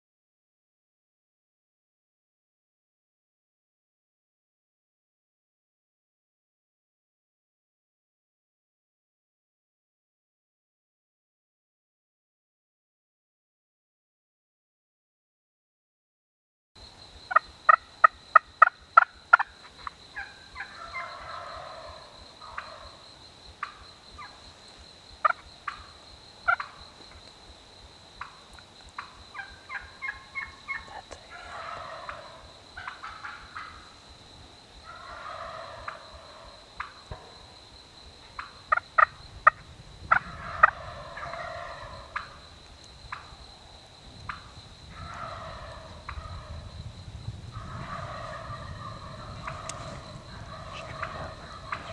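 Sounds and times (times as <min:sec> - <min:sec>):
sharp turkey yelps: 0:17.3 - 0:23.0, 0:26.5 - 0:26.8, 0:29.0 - 0:33.9, 0:34.9 - 0:37.0, 0:38.4 - 0:42.4, 0:44.9 - 0:46.6, 0:47.6 - 0:51.9
turkey gobbling: 0:17.3 - 0:23.0, 0:25.2 - 0:26.8, 0:29.0 - 0:34.0, 0:34.9 - 0:37.4, 0:38.4 - 0:42.4, 0:44.3 - 0:46.6, 0:47.6 - 0:51.9.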